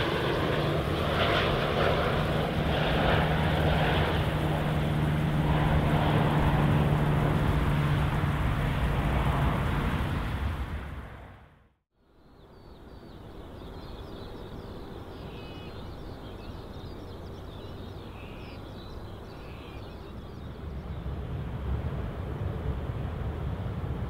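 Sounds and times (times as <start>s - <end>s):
distant jet aircraft rumble: 0.0s - 24.0s
small birds chirping: 12.2s - 21.1s.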